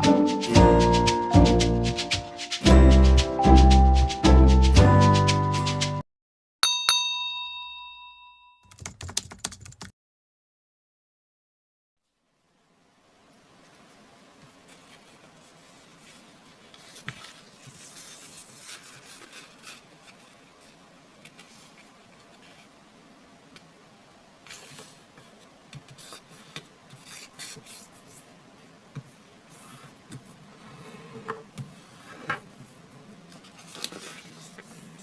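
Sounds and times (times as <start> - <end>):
paper rustling while folded: 13.7 - 22.8, 24.4 - 28.3, 33.3 - 35.0
paper crinkles: 14.6 - 22.7, 33.3 - 35.0.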